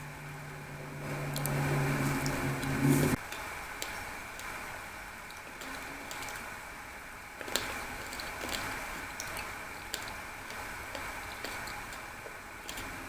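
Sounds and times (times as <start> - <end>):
quiet chewing with mouth clicks: 7.4 - 13.0.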